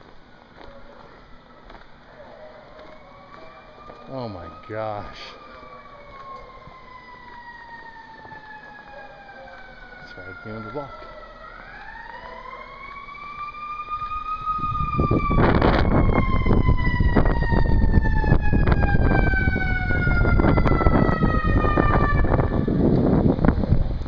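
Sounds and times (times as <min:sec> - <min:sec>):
siren wailing: 0:01.0 - 0:23.3
wind buffeting microphone: 0:13.9 - 0:24.0.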